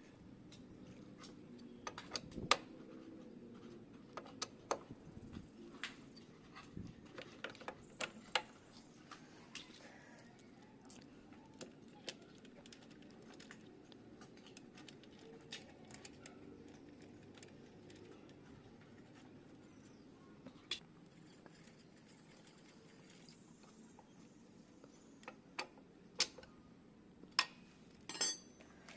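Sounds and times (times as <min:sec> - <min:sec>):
tools and metal parts clicking: 0:27.4 - 0:28.6.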